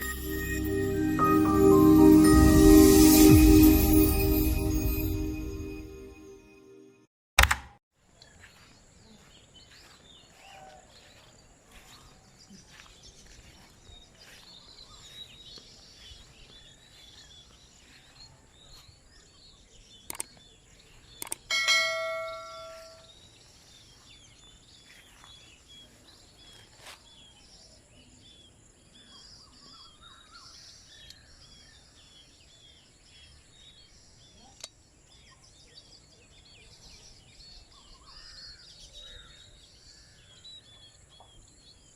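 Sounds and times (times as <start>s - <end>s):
metallic bell ring: 0.0s - 6.2s, 21.5s - 23.1s
sharp clicks: 7.4s - 7.8s, 20.1s - 20.4s, 21.2s - 21.5s.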